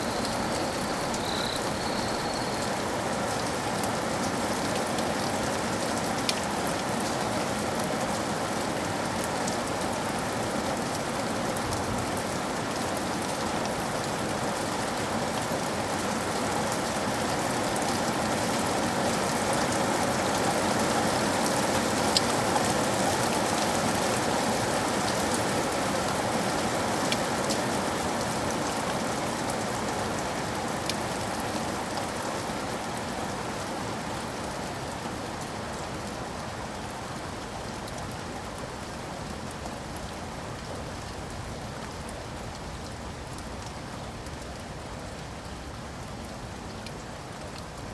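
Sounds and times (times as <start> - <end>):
raindrop ticks: 0.0 - 2.9
steady rain falling: 0.0 - 3.0, 19.4 - 47.9.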